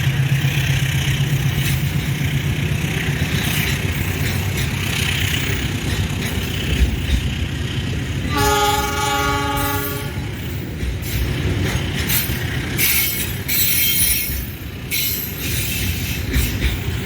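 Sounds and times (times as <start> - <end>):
train rumbling: 0.0 - 17.0
locomotive horn blast: 8.3 - 10.4.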